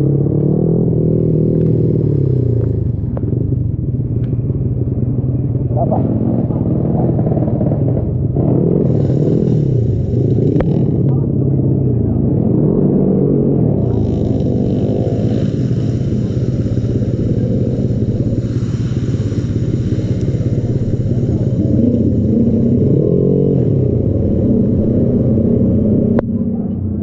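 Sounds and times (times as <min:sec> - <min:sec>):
motorcycle engine idling: 0:00.0 - 0:12.6, 0:13.3 - 0:27.0
high hiss: 0:00.9 - 0:03.2, 0:08.8 - 0:11.1, 0:13.8 - 0:26.2.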